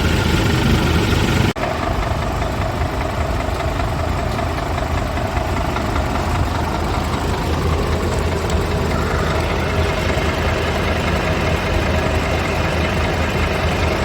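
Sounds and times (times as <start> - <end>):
diesel truck engine idling: 0.0 - 14.0.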